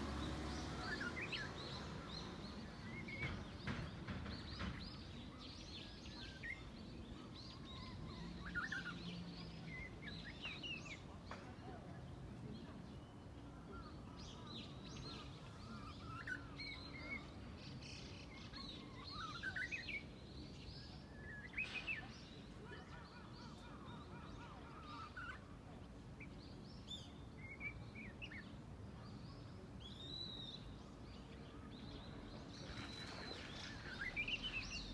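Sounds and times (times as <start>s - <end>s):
bush warbler singing: 0.0s - 5.2s, 29.8s - 34.9s.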